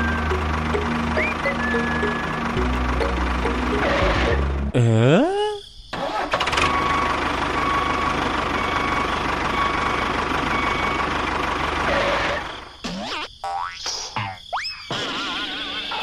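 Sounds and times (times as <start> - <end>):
engine starting and running: 0.0 - 4.7, 5.9 - 12.7.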